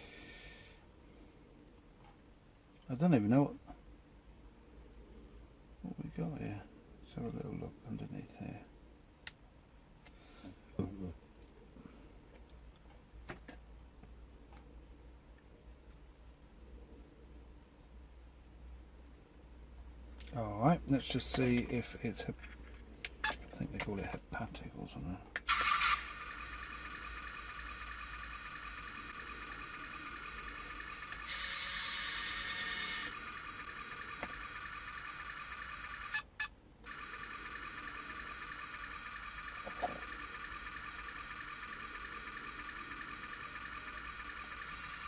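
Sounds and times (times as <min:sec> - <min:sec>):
toy tank motor buzzing whir: 0:25.5 - 0:45.0.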